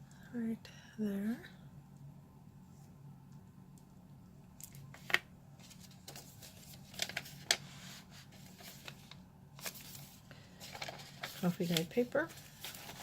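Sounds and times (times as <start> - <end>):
paper crinkles and taps: 4.6 - 13.0
paper pages rustling: 4.7 - 13.0.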